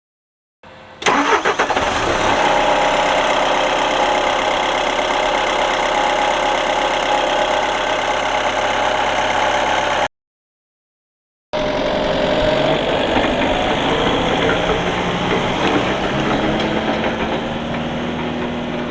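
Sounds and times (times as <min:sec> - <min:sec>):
diesel engine starting and idling: 0:00.7 - 0:10.1, 0:11.6 - 0:18.9.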